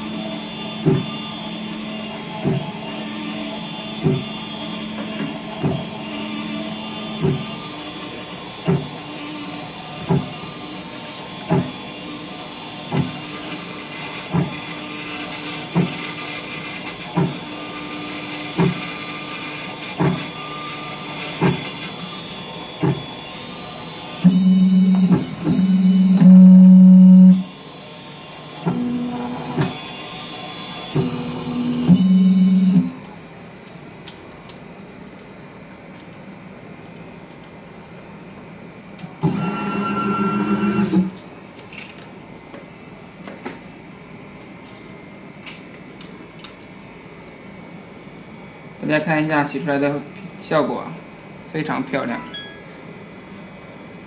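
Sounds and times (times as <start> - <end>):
engraving machine motor whine: 0.0 - 33.6.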